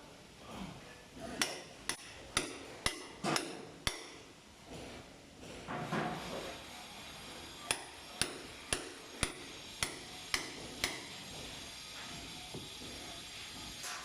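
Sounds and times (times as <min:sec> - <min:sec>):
hammer striking: 0:01.4 - 0:04.2, 0:07.7 - 0:11.3.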